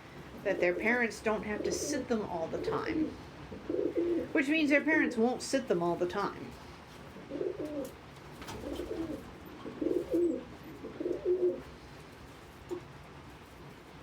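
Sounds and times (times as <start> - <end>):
pigeon cooing: 0.5 - 4.4, 7.2 - 11.7.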